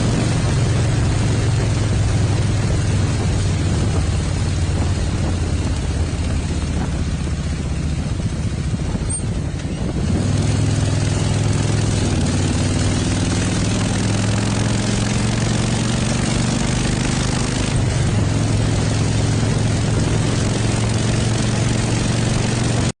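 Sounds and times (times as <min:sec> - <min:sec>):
motorcycle engine running: 0:00.0 - 0:22.9
steady rushing noise: 0:00.0 - 0:22.9.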